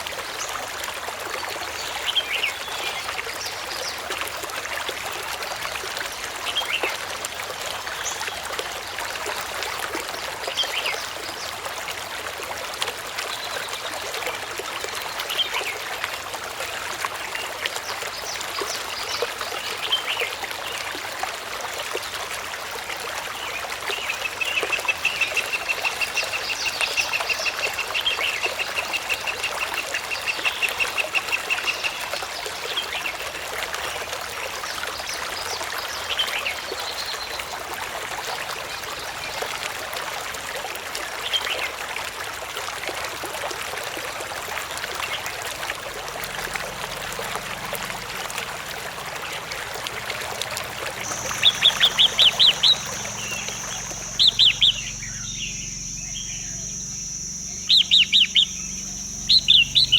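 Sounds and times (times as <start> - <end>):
water trickling: 0.0 - 59.9
short bird calls: 51.0 - 59.9.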